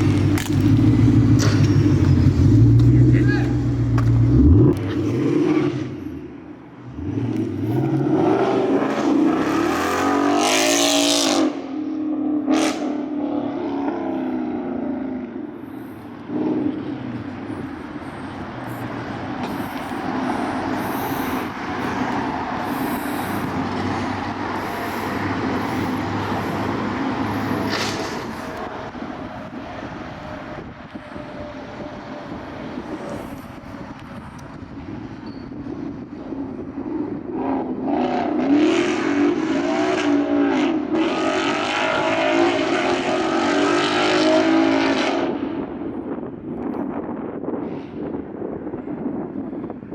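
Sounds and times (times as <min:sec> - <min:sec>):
car engine revving through exhaust: 0:00.0 - 0:11.6, 0:18.6 - 0:29.0, 0:36.8 - 0:45.6
rushing noise: 0:17.4 - 0:35.0.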